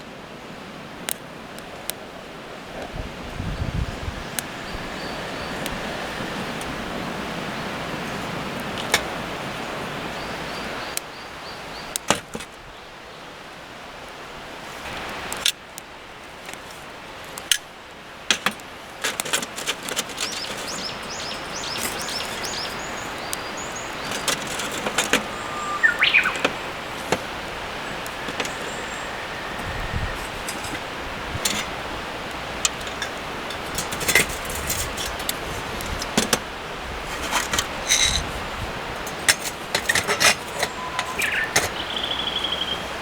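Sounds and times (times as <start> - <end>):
steady outdoor hiss: 0.0 - 43.0
birds chirping: 3.5 - 13.3, 18.4 - 36.3, 37.2 - 43.0
sharp clicks and cracks: 17.3 - 17.7, 18.3 - 27.3, 31.4 - 36.5, 39.0 - 41.8.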